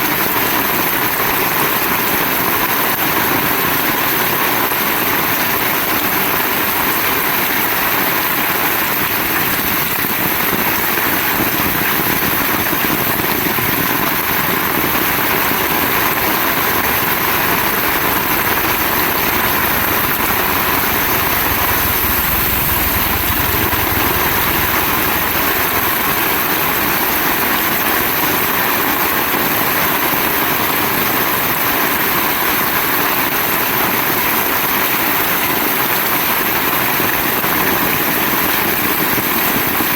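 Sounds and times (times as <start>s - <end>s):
heavy rain pouring: 0.0s - 35.4s
low rumble: 14.4s - 28.9s.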